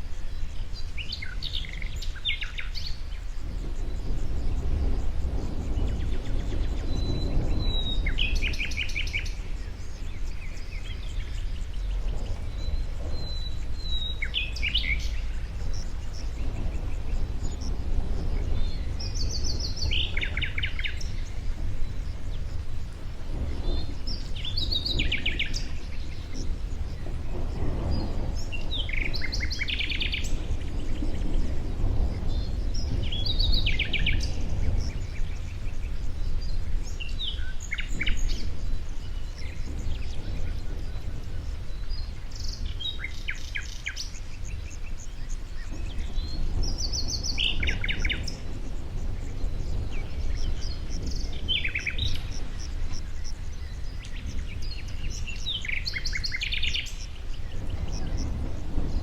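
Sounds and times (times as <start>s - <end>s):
songbirds trilling: 0.0s - 59.0s
steady low rumble: 0.0s - 59.0s.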